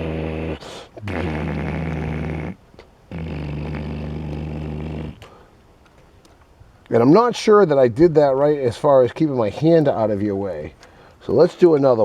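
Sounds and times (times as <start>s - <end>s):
man making droning vocal noise: 0.0s - 5.5s.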